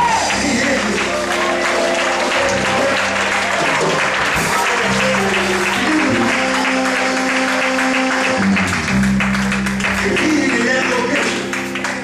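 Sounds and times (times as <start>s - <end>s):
congregation calling out: 0.0s - 8.7s
congregation clapping: 0.0s - 12.0s
church music held chords: 0.3s - 12.0s.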